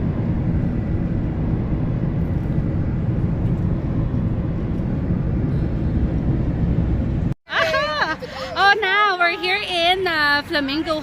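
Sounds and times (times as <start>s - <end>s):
car tyres and engine rumble: 0.0s - 7.4s.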